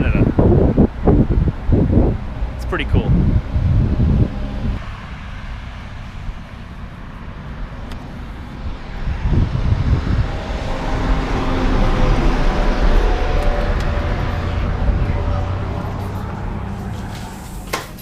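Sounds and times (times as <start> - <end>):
vehicle engine and tyre noise: 0.0 - 18.0.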